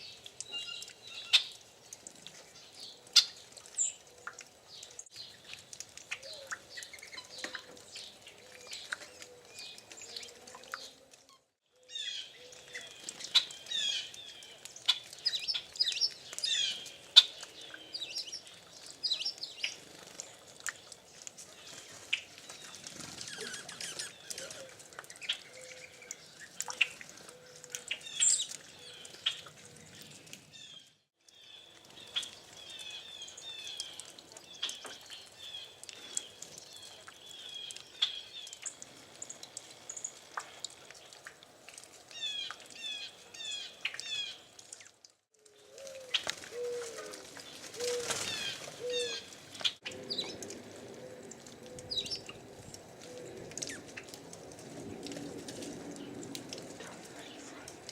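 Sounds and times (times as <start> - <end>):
songbirds chirping and trilling: 0.0 - 11.1, 11.7 - 41.2, 42.1 - 57.9
low cooing: 45.6 - 48.2.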